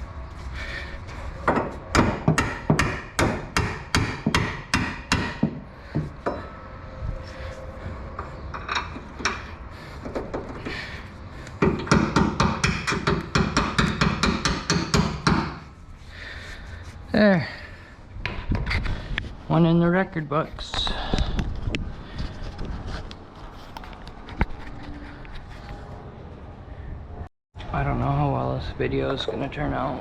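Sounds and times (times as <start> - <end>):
hammer blows: 1.4 - 15.8.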